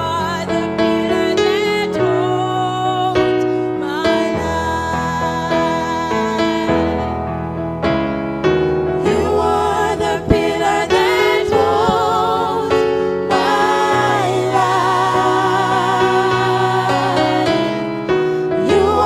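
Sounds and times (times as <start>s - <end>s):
sustained keyboard chords: 6.2s - 19.0s
group of voices singing gospel: 9.0s - 19.0s.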